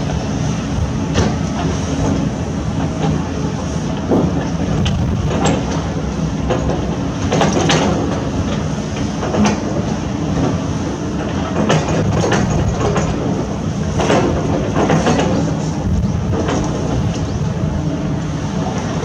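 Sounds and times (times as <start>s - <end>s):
diesel engine rumbling: 0.0s - 19.0s.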